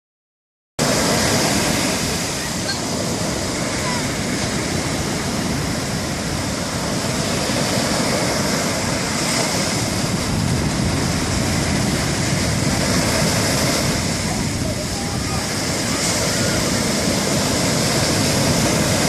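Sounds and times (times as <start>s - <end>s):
waves breaking on a beach: 0.8s - 19.0s.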